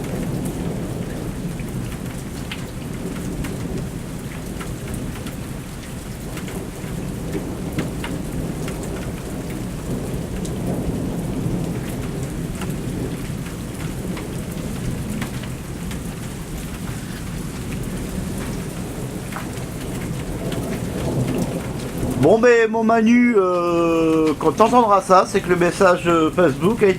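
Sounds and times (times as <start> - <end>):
rain pattering: 0.0 - 26.9
low rolling thunder: 6.3 - 22.4.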